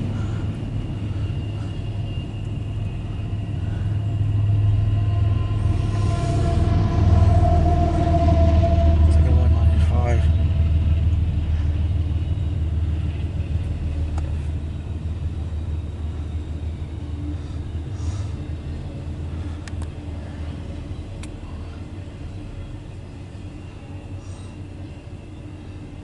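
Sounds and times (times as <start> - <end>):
freight train rumbling past: 0.0 - 26.0
faint clicks: 19.6 - 20.0, 21.2 - 21.4.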